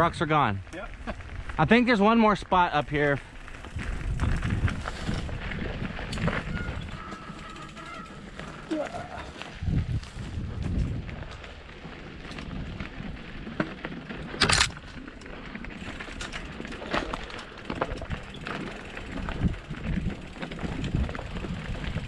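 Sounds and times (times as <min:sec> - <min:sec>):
bike knocks and clicks: 0:15.8 - 0:22.0.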